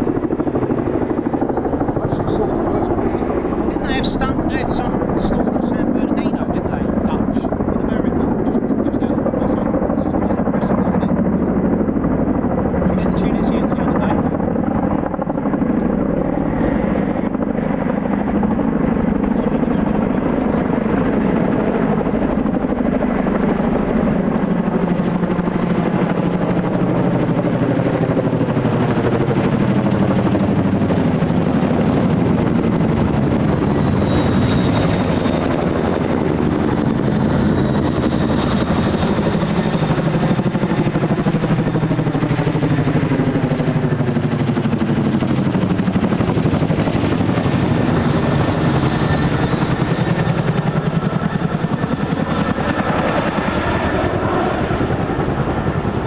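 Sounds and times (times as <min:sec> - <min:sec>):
helicopter rotors beating: 0:00.0 - 0:56.0
high turbine whine: 0:00.0 - 0:56.0.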